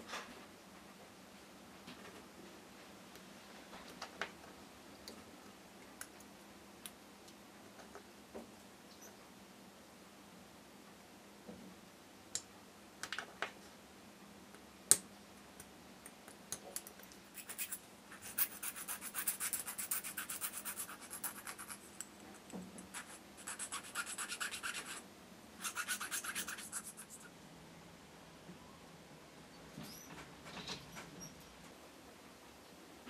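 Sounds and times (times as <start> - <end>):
quick scratching strokes: 17.3 - 21.9, 22.9 - 25.0, 25.6 - 27.3.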